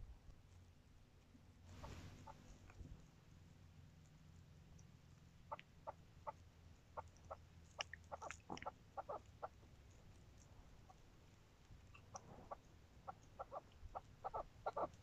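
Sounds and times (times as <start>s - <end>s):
faint low hum: 0.0s - 15.0s
partridge clucking calls: 1.7s - 2.5s, 5.5s - 6.4s, 7.0s - 9.6s, 11.9s - 15.0s.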